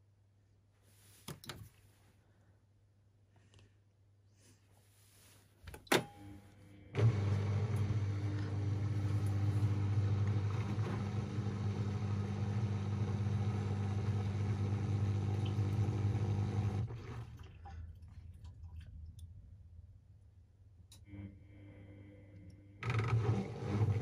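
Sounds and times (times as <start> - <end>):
washing machine pump humming: 6.9 - 17.8, 22.8 - 24.0.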